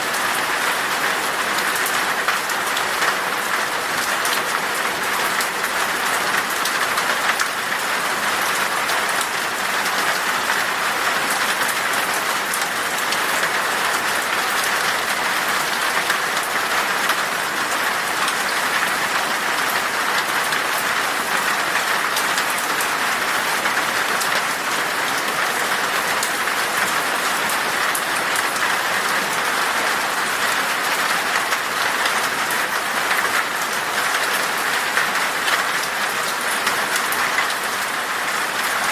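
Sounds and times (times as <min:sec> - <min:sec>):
rain falling in a forest: 0:00.0 - 0:38.9.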